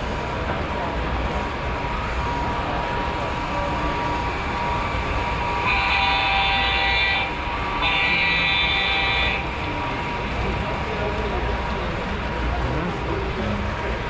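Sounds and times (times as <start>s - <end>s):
hall hubbub: 0.0s - 14.0s
model train horn blasts: 5.5s - 9.6s.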